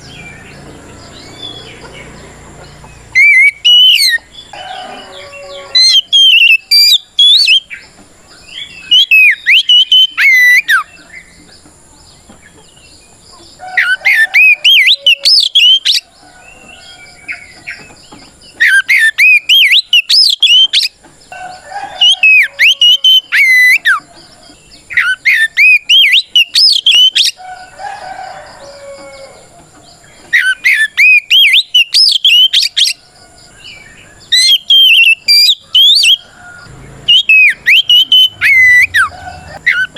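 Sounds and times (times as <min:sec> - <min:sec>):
bird singing whistled phrases: 0:03.2 - 0:04.2, 0:05.0 - 0:07.7, 0:08.8 - 0:10.9, 0:13.8 - 0:16.0, 0:18.6 - 0:21.0, 0:22.0 - 0:24.0, 0:24.9 - 0:27.4, 0:30.3 - 0:33.0, 0:34.3 - 0:36.3, 0:37.1 - 0:39.9.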